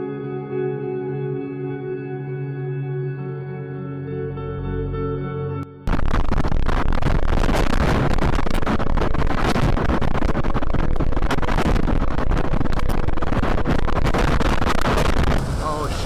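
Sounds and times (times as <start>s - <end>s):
strong wind buffeting microphone: 5.9s - 16.0s.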